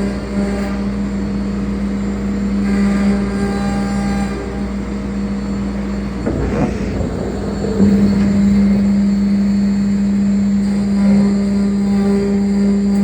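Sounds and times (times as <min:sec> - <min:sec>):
short irregular rattle: 0:06.0 - 0:10.4.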